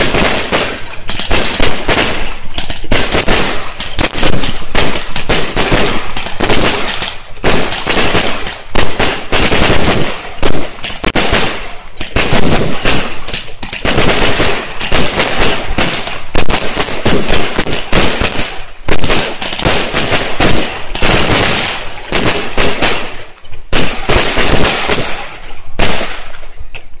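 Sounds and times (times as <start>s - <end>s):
fireworks bangs and crackling: 0.0s - 27.0s.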